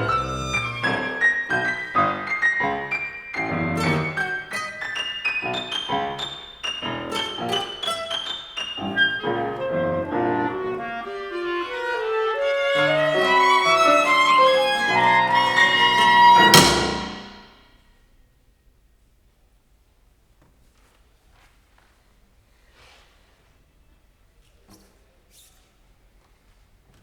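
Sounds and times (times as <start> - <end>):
chamber ensemble playing: 0.0 - 17.4.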